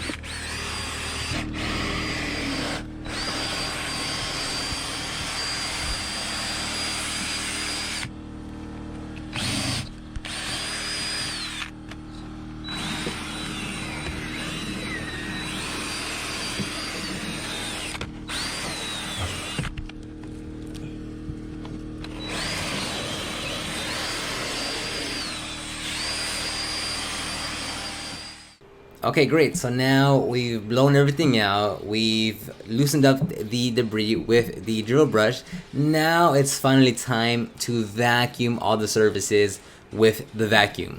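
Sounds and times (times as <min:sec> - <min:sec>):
cordless drill motor whine: 0:00.0 - 0:28.6.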